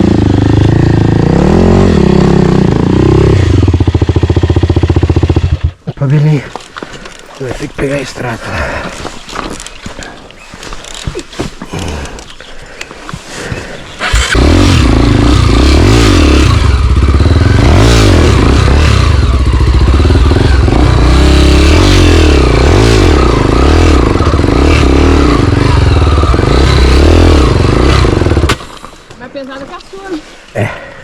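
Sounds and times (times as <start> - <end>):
motorcycle engine revving: 0.0 - 5.8, 13.8 - 28.7.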